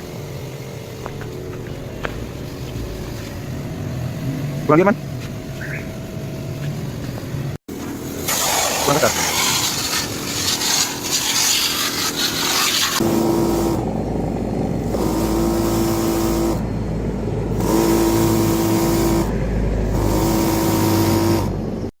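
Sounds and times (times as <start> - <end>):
continuous low hum: 0.0 - 8.3, 13.0 - 21.9
pump whining: 0.0 - 21.9
water spray hissing: 8.1 - 13.8.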